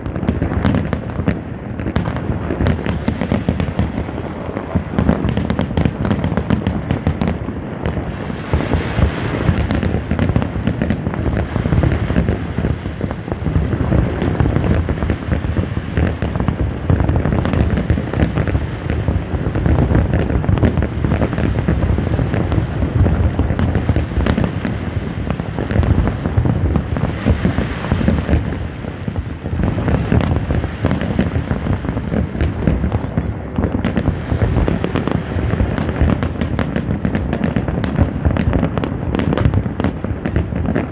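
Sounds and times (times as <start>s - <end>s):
fireworks booming: 0.0s - 40.9s
fireworks crackling: 0.0s - 40.9s.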